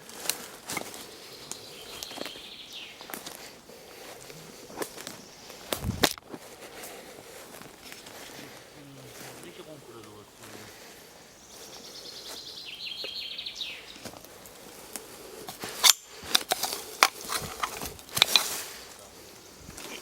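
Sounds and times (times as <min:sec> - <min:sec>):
songbird trilling: 0:00.9 - 0:03.2, 0:11.3 - 0:14.1.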